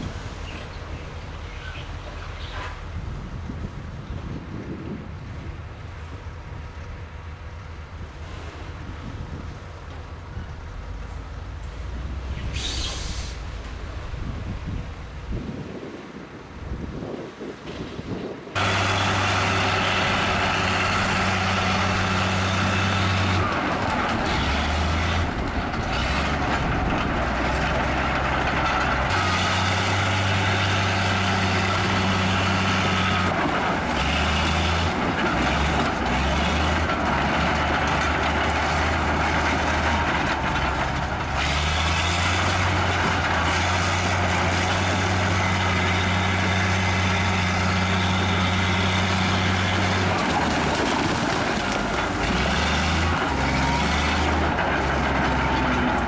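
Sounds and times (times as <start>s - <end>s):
bulldozer diesel engine: 0.0s - 56.0s
dense noisy clatter: 17.6s - 56.0s.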